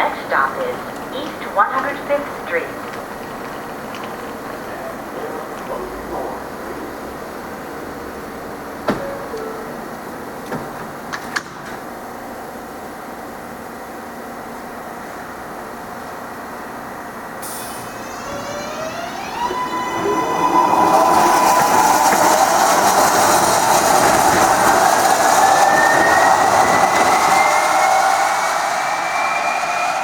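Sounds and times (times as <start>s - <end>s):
train cars rumbling: 0.0s - 30.0s
train motor whine: 17.4s - 30.0s.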